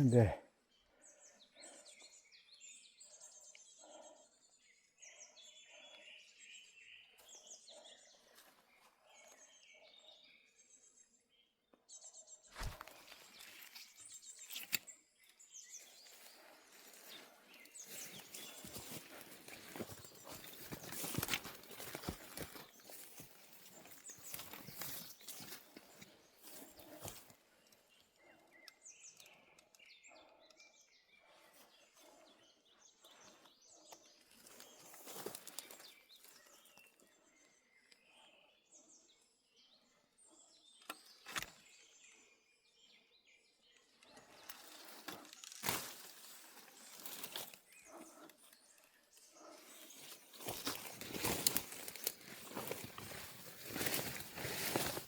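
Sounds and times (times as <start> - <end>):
small birds chirping: 0.0 - 55.0
footsteps through vegetation: 12.5 - 14.8, 15.8 - 27.4, 34.4 - 36.5, 44.4 - 48.2, 49.4 - 55.0
plants rustling and crackling: 12.6 - 13.9, 16.8 - 27.2, 44.6 - 47.6, 50.0 - 55.0.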